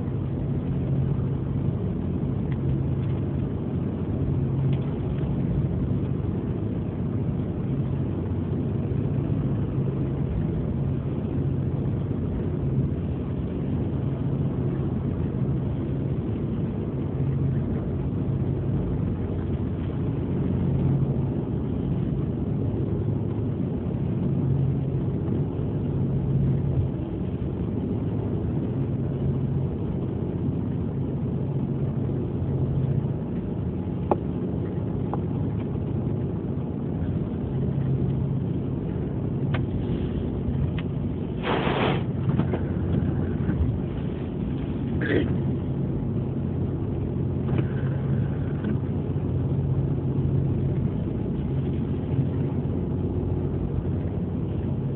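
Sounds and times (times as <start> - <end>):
ferry engines droning: 0.0 - 54.9
short burst of noise: 41.4 - 42.1.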